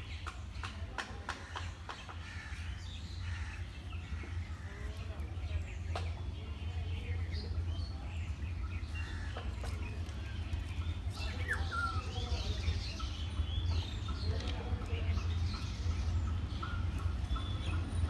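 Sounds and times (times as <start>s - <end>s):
birds chirping: 0.0s - 18.0s
steady low rumble: 1.6s - 18.0s.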